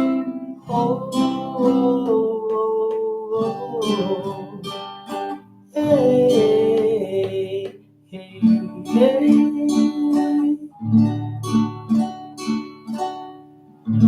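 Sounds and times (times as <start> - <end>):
person singing wordlessly: 0.0 - 11.0
acoustic guitar strumming: 0.0 - 14.0.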